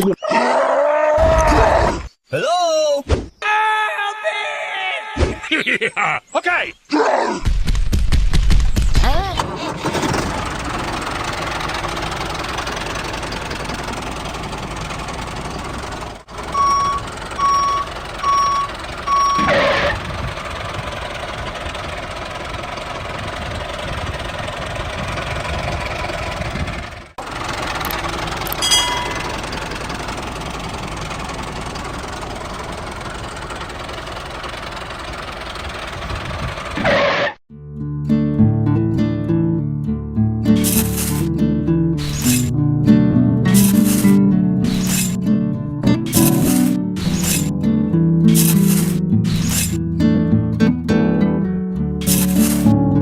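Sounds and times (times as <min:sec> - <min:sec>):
machinery running: 0:09.7 - 0:37.1, 0:40.6 - 0:41.3, 0:42.0 - 0:42.5, 0:43.5 - 0:45.2, 0:45.9 - 0:47.5, 0:48.3 - 0:49.8, 0:52.0 - 0:53.0
short beeps: 0:16.6 - 0:19.6.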